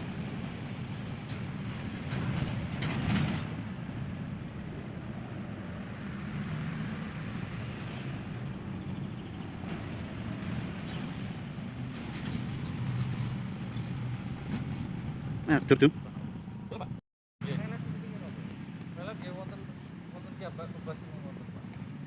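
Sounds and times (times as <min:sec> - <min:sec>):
wind noise on microphone: 0:00.0 - 0:15.5
low engine rumble: 0:00.0 - 0:22.0.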